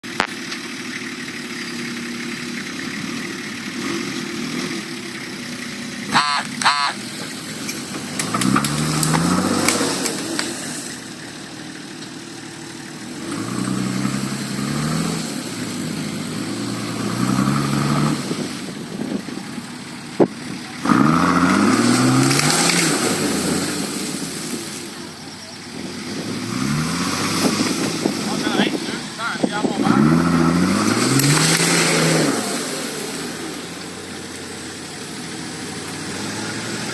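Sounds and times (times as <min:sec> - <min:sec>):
vehicle engine revving: 0:00.0 - 0:36.9.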